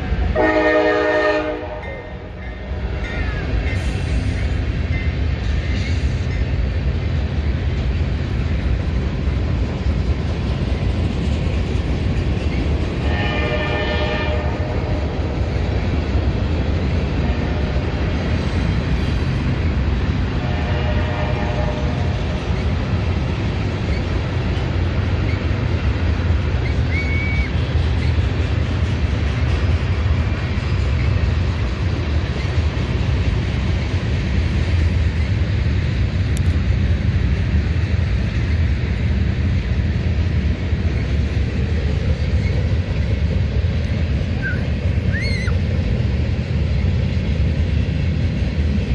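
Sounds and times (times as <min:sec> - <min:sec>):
train rumbling past: 0:00.0 - 0:48.9
train horn blasts: 0:00.3 - 0:02.4, 0:13.0 - 0:14.9, 0:20.4 - 0:22.1.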